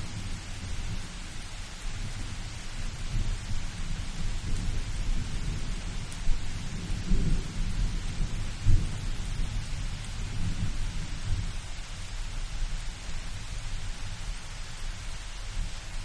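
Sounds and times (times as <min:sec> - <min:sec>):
low thunder rumbling: 0:00.0 - 0:11.7
rain hiss: 0:00.0 - 0:16.0.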